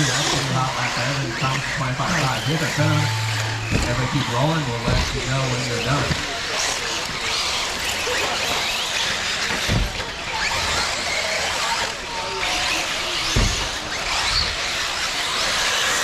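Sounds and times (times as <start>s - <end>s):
low thumps: 0.0s - 6.2s
rc car motors whining: 0.0s - 16.0s
tire and track noise: 0.0s - 16.0s.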